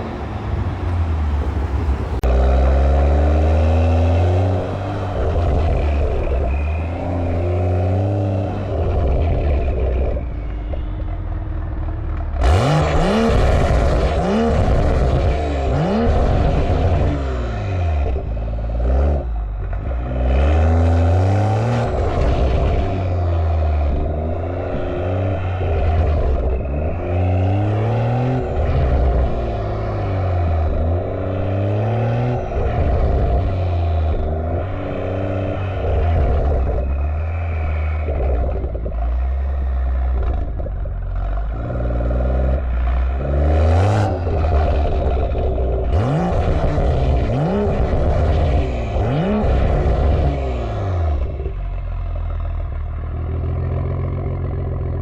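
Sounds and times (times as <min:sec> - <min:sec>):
loud rush of noise: 0:00.0 - 0:02.5
car engine revving: 0:00.0 - 0:55.0.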